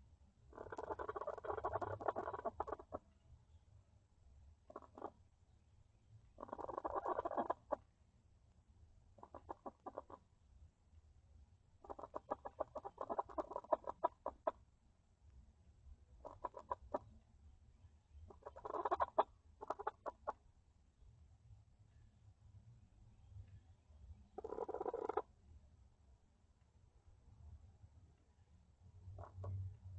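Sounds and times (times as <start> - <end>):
hens clucking: 0.6 - 3.0, 6.4 - 7.8, 9.2 - 10.2, 11.8 - 14.6, 16.2 - 17.0, 18.3 - 20.4, 24.4 - 25.2.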